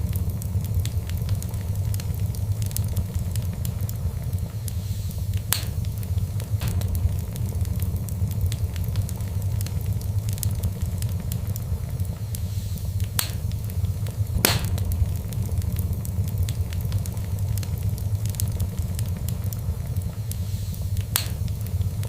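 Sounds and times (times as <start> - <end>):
fire crackling: 0.0 - 22.0
fire popping: 0.0 - 22.0
low rumble: 0.0 - 22.0.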